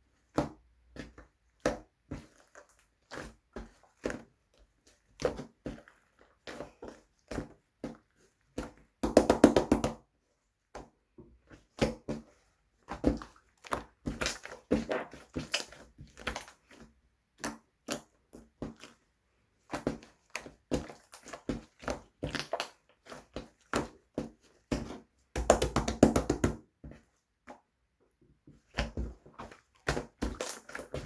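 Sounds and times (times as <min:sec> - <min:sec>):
slime squeezed by hands: 0:13.1 - 0:16.8.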